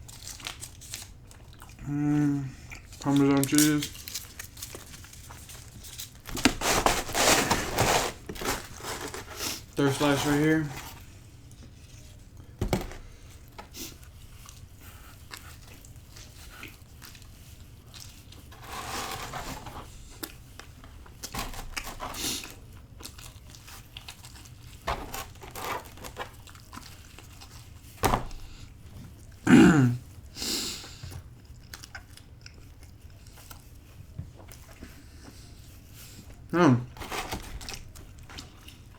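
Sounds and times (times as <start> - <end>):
soft crinkling: 0.0 - 1.8, 2.8 - 29.4
person eating pizza: 0.0 - 38.9.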